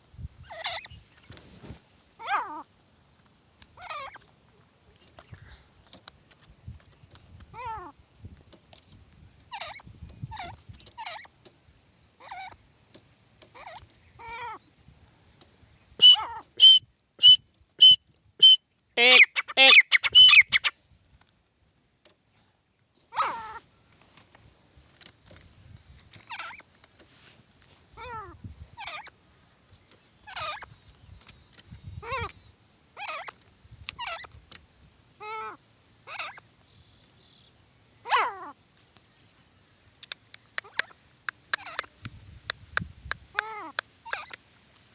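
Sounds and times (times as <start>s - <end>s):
partridges calling: 0.4s - 1.4s, 3.7s - 7.9s, 8.7s - 14.8s, 15.4s - 20.8s, 26.1s - 27.0s, 27.9s - 34.6s, 35.2s - 39.1s, 40.0s - 44.4s.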